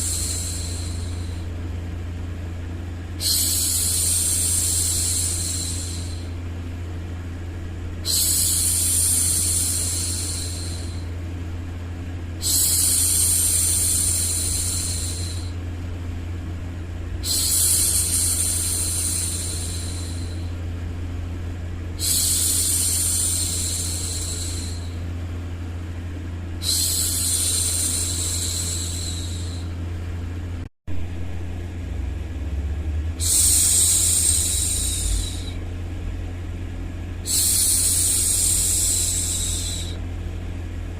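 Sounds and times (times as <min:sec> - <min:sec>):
low white noise hum: 0:00.0 - 0:40.9.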